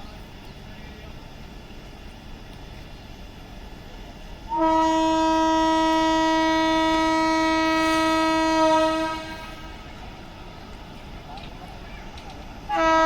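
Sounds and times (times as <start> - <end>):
train horn long blast: 4.5 - 10.0, 12.7 - 13.0.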